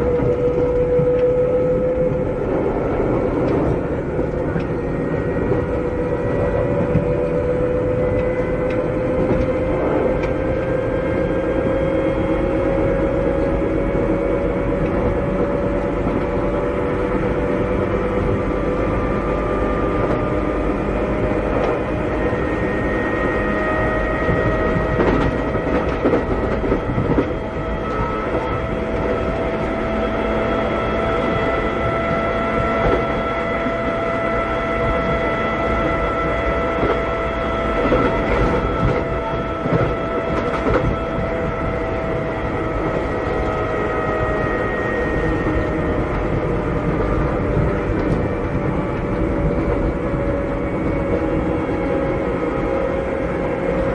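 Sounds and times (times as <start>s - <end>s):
electric train motor whine: 0.0s - 53.9s
train running rumble: 0.0s - 53.9s
rail joint clacks: 21.4s - 53.9s.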